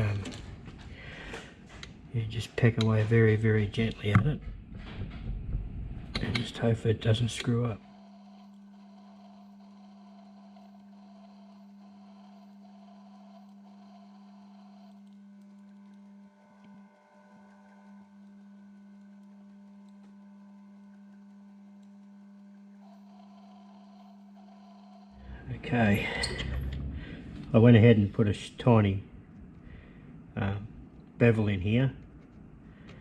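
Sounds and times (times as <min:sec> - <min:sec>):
metal lathe humming: 0:07.4 - 0:19.6, 0:20.5 - 0:28.9.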